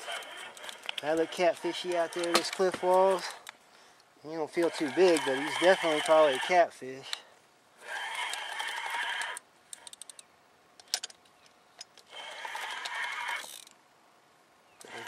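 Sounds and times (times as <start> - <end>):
fishing reel gear whirring: 0.0 - 3.5, 4.5 - 6.6, 7.8 - 10.2, 12.0 - 13.7.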